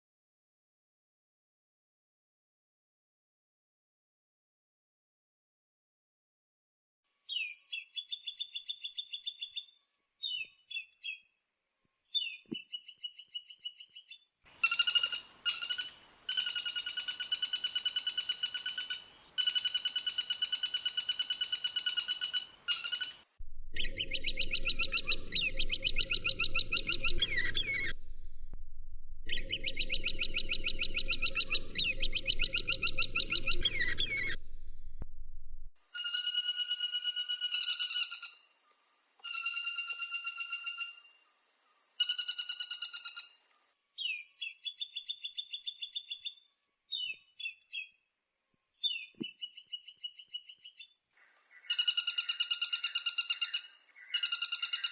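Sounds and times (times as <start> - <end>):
woodpecker rattling trills: 14.6 - 38.4, 51.6 - 54.9
low hum: 23.4 - 35.8.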